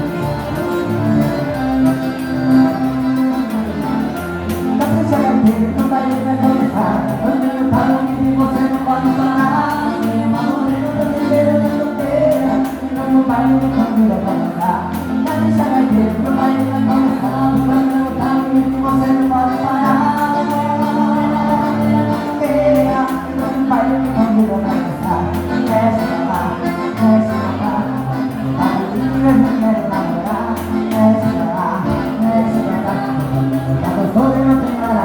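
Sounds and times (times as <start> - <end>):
accordion chords: 0.0 - 35.0
person singing: 0.0 - 35.0.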